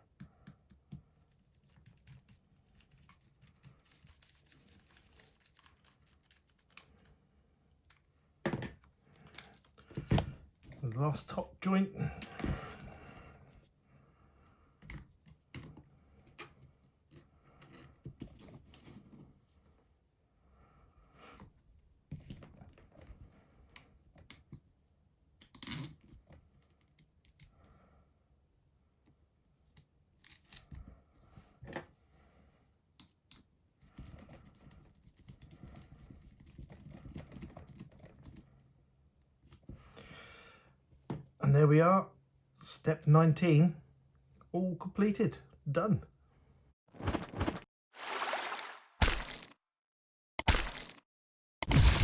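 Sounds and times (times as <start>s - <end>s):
handling noises: 46.9s - 49.5s.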